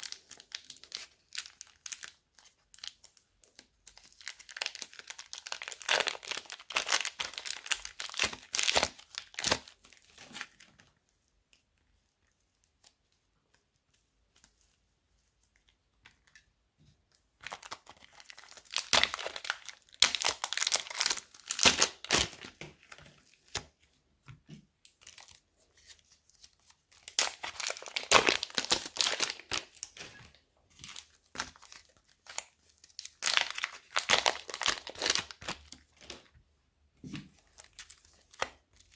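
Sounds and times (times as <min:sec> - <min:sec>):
plastic bags crinkling: 0:04.2 - 0:09.7, 0:17.4 - 0:22.9, 0:27.0 - 0:36.2.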